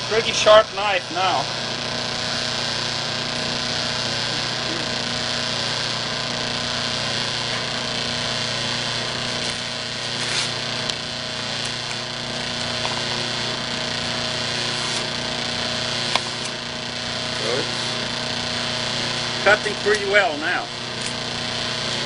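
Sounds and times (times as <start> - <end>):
buffing wheel motor humming: 0.0 - 22.0
short scrapes or clicks: 10.2 - 10.6.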